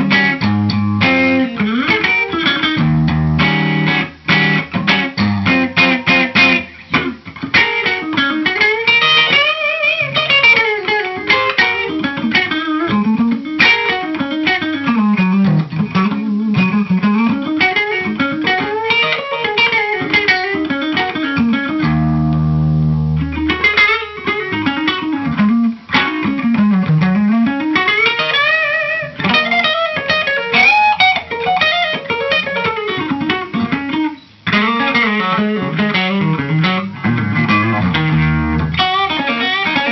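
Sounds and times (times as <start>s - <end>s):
electric guitar single-note runs: 20.8s - 27.5s.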